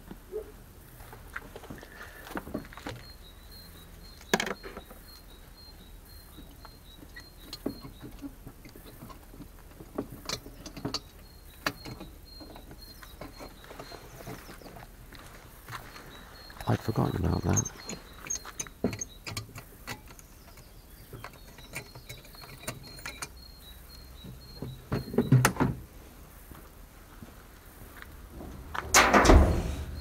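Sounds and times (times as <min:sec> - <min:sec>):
clicks and knocks of handling: 0:07.1 - 0:14.9.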